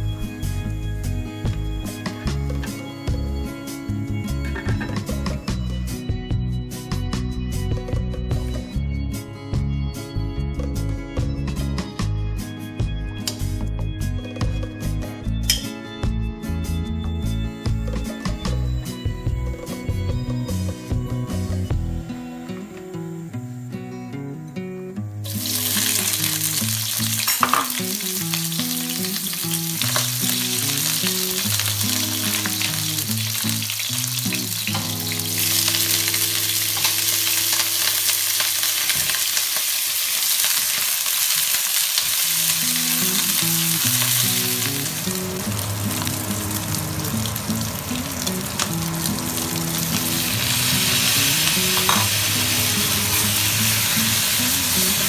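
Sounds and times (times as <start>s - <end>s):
oil sizzling in a wok: 25.2s - 55.0s.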